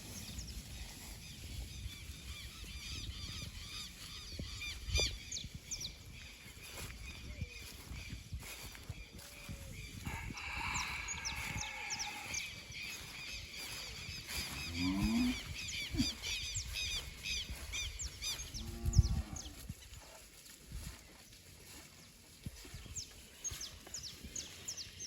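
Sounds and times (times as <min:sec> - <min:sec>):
cattle mooing: 0:14.6 - 0:15.4.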